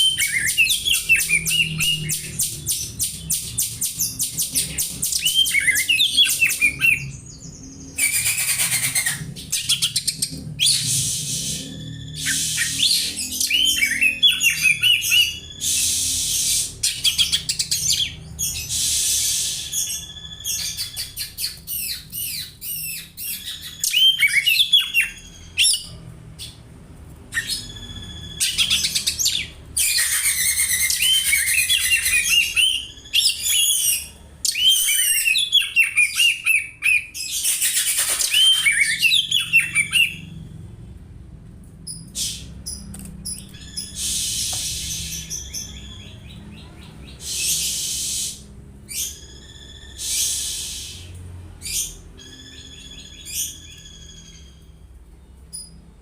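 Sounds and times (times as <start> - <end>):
bird singing chirps and chattering: 0.0 - 26.6, 27.4 - 40.3.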